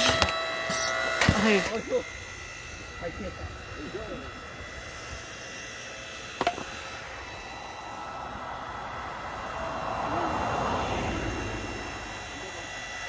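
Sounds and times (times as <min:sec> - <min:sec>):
log splitter humming: 0:00.0 - 0:13.0
rush of noise: 0:06.5 - 0:13.0.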